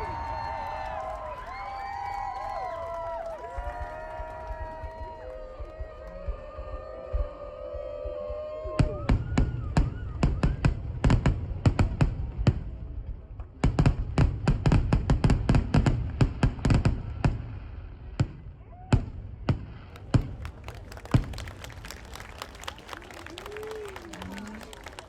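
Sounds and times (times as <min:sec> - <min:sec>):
fireworks banging: 0:19.0 - 0:22.1.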